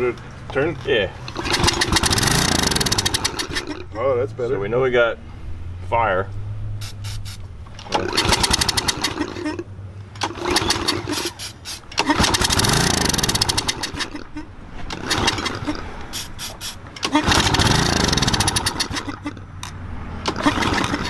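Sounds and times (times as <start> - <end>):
engine pull-starting and firing: 1.2 - 4.0, 6.8 - 21.0
engine pops: 1.3 - 3.8, 7.7 - 9.5, 10.1 - 14.2, 14.9 - 19.1, 20.2 - 21.0.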